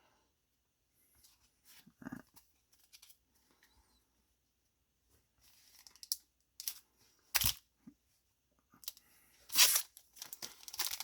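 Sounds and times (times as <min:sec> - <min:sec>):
foil wrapper crinkling: 0:09.5 - 0:11.0.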